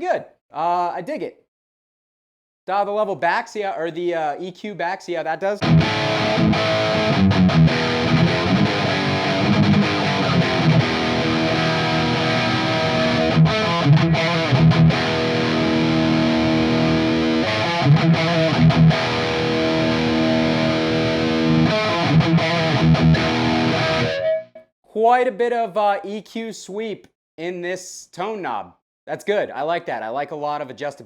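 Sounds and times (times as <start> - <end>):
distorted electric guitar riffing: 5.6 - 24.6.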